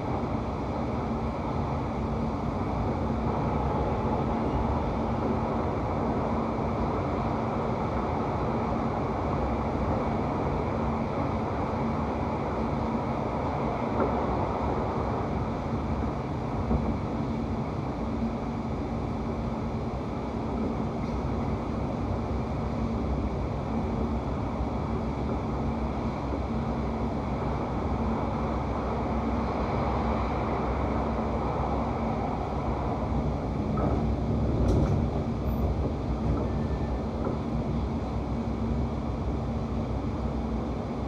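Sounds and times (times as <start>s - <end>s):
train carriage rumble and hum: 0.0s - 41.0s.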